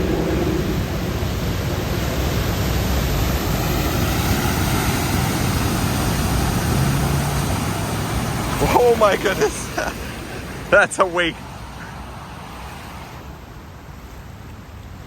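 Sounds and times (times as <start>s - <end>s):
vehicle engine running: 0.0s - 10.9s
water splashing and churning: 0.0s - 15.0s.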